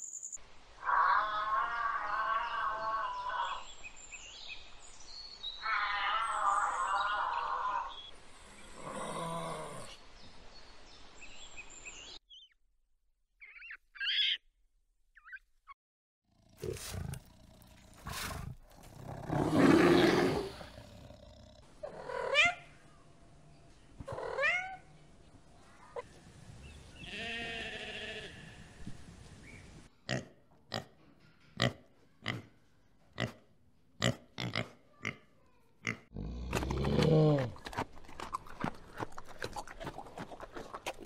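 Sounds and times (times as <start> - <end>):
pig grunting: 16.3 - 22.4, 34.0 - 41.0
bear growling: 16.3 - 22.6, 36.1 - 41.0
sheep and lambs bleating: 27.0 - 28.7.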